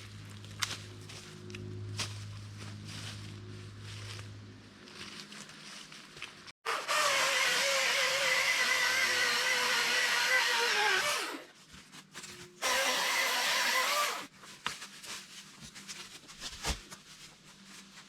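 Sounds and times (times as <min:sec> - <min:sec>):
electric chainsaw motor whine: 0:06.7 - 0:11.4, 0:12.6 - 0:14.3.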